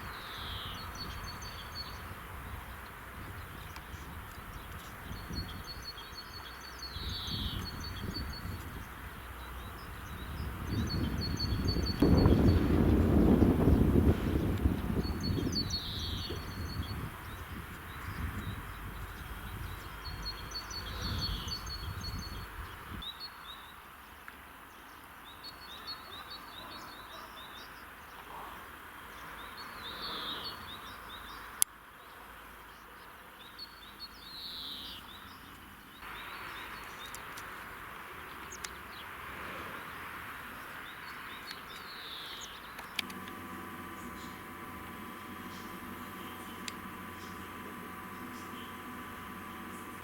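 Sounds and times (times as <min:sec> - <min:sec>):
songbirds chirping: 0:00.0 - 0:50.0.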